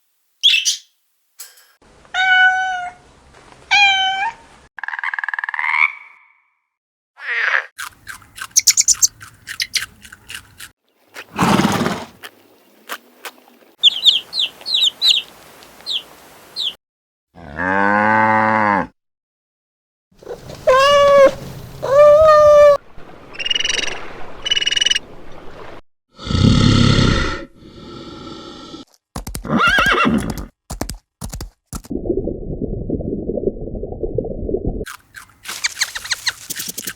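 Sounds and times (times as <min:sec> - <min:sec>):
high chirps: 0:08.5 - 0:09.9, 0:35.2 - 0:36.9
high drawn-out animal calls: 0:20.3 - 0:22.8, 0:35.5 - 0:36.9
rapid animal clicks: 0:28.9 - 0:31.9.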